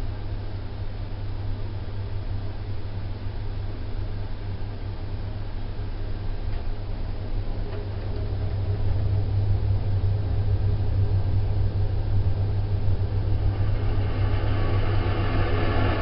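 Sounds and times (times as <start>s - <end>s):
boiler low hum: 0.0s - 16.0s
rushing noise: 12.6s - 16.0s.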